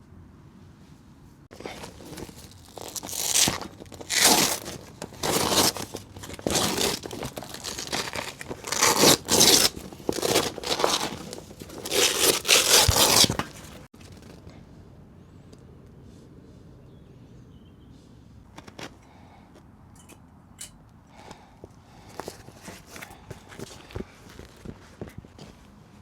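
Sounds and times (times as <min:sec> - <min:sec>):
crinkling and tearing: 0:01.5 - 0:14.4.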